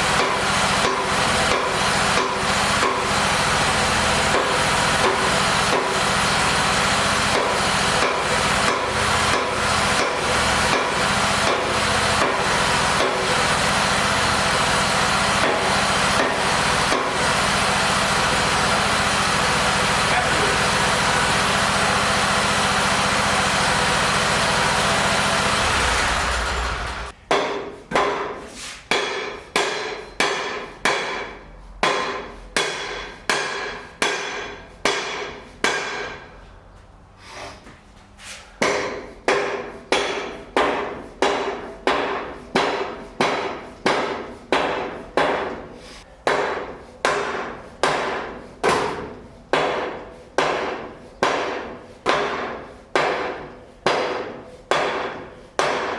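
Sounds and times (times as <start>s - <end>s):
engine-like running noise: 2.8s - 27.2s.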